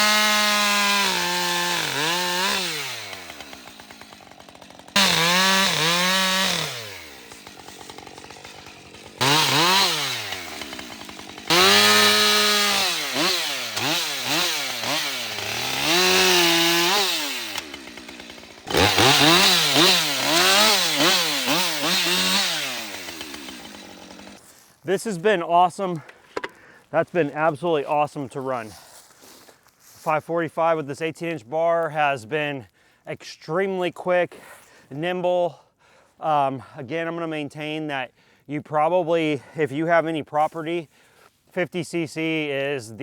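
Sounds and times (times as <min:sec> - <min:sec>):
chainsaw cutting wood: 0:00.0 - 0:24.5.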